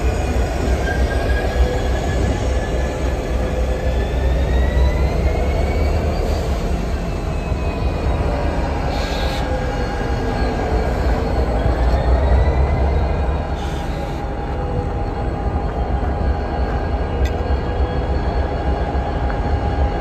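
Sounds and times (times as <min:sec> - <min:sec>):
diesel locomotive rumble: 0:00.0 - 0:20.0
high wheel squeal: 0:00.1 - 0:15.2.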